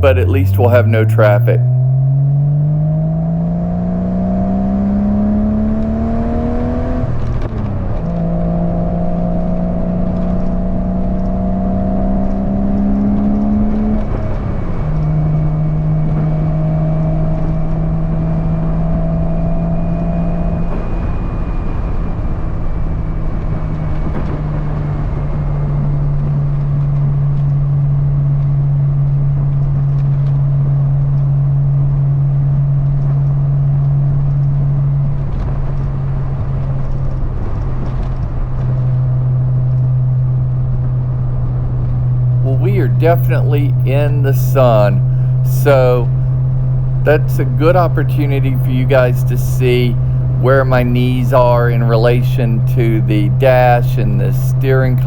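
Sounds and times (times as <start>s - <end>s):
car engine accelerating: 0.0s - 25.2s, 26.1s - 55.0s.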